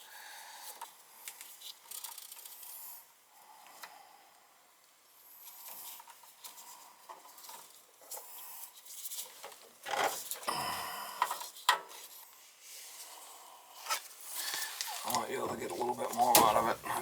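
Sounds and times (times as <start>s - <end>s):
rustling and scraping of wires: 0.6s - 3.1s, 5.3s - 10.5s, 13.8s - 17.0s.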